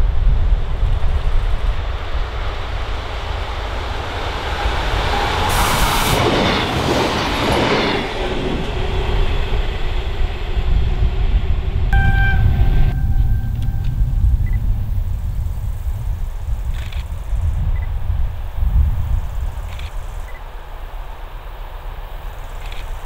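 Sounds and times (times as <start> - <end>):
wind rumble on microphone: 0.0 - 20.7
diesel railcar passing: 0.0 - 23.0
brief steady tone: 12.0 - 14.8.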